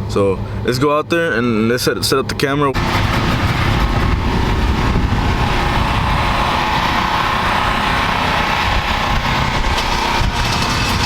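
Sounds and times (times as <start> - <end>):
engine running loudly: 2.8 - 11.0.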